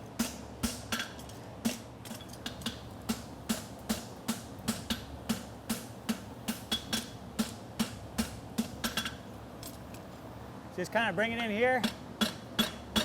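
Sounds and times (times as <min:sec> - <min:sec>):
cooling fan buzz: 0:00.0 - 0:13.0
hammer striking shoe on anvil: 0:00.2 - 0:09.2, 0:11.8 - 0:13.0.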